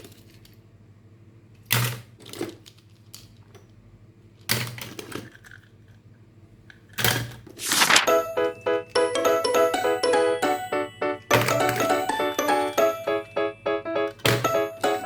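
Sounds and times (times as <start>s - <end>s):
plastic toys clacking and rattling: 1.6s - 3.6s, 4.3s - 6.1s.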